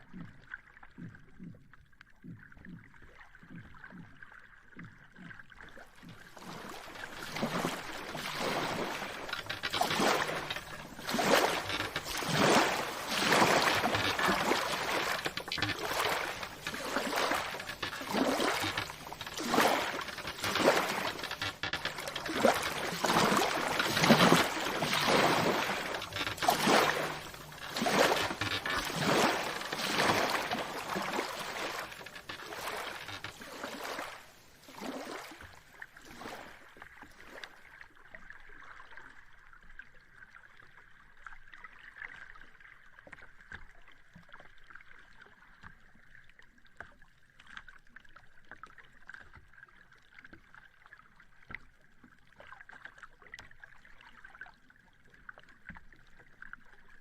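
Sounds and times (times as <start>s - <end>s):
gentle water lapping: 0.0s - 57.0s
sea water splashing in surges: 3.1s - 37.7s.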